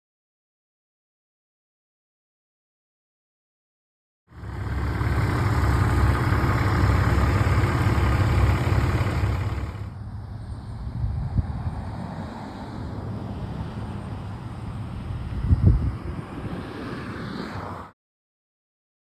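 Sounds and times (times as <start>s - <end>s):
heavy machinery engine running: 4.4s - 9.9s.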